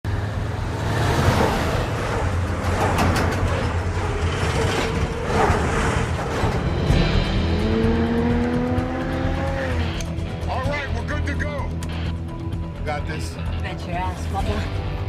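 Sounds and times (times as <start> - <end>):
truck engine low rumble: 0.0 - 10.5
passing vehicles whooshing: 0.1 - 10.2.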